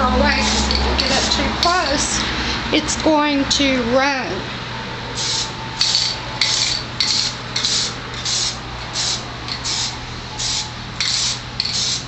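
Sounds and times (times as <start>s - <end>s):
spray paint can hissing: 0.3s - 1.7s, 5.2s - 12.0s.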